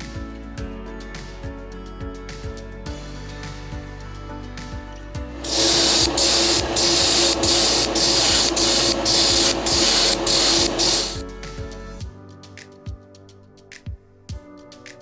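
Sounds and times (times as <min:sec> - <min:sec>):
background music: 0:00.0 - 0:15.0
spray hissing: 0:05.4 - 0:11.2.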